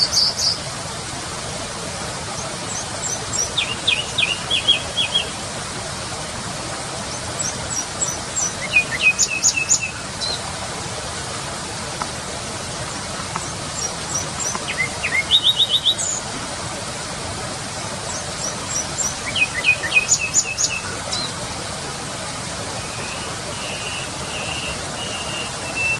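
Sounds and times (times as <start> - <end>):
steady background hiss: 0.0 - 25.9
nightingale singing trills: 2.8 - 5.3, 7.4 - 10.4, 13.8 - 16.2, 18.4 - 21.3, 22.8 - 25.9.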